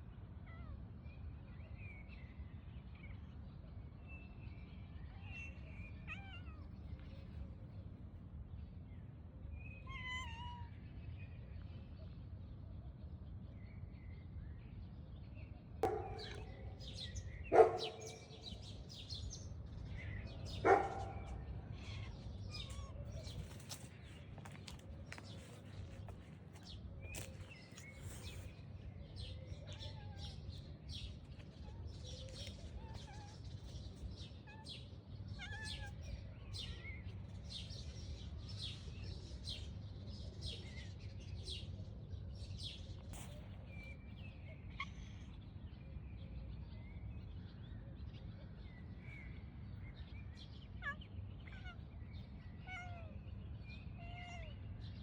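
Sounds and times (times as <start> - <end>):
small birds chirping: 15.2 - 55.0.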